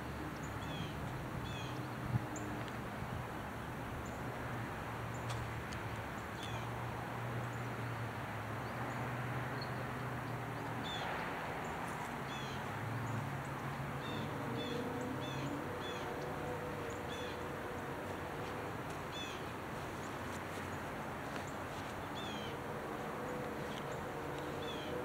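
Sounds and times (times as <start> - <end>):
low hum and hiss: 0.0 - 25.0
birds chirping: 5.0 - 25.0.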